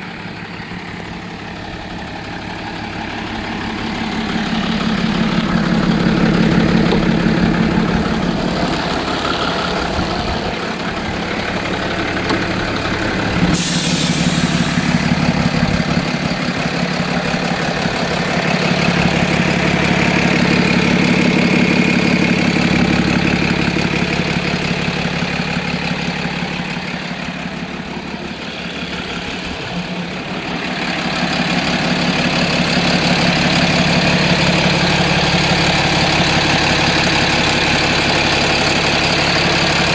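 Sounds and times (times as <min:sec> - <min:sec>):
diesel truck engine idling: 0:00.0 - 0:39.9
brief hiss: 0:13.6 - 0:15.2.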